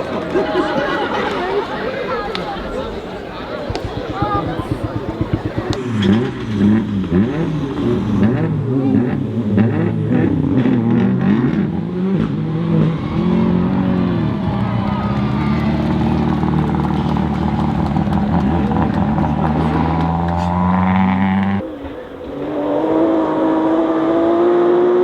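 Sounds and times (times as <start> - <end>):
rally car engine at full throttle: 2.6 - 25.0
sharp engine cracks: 3.4 - 6.5.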